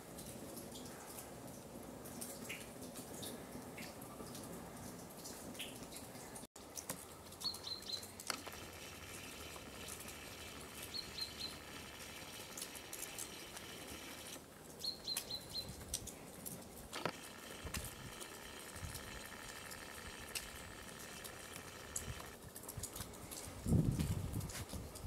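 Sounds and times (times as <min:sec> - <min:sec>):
small bird chirping: 0:07.4 - 0:15.8.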